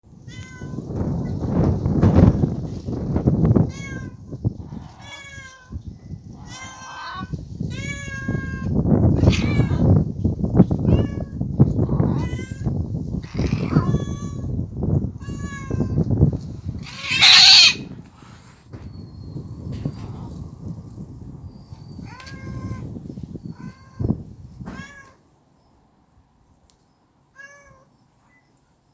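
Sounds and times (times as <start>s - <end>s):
cats yowling: 6.4s - 9.9s, 12.0s - 14.4s, 16.8s - 18.0s
cat hissing: 16.8s - 17.9s.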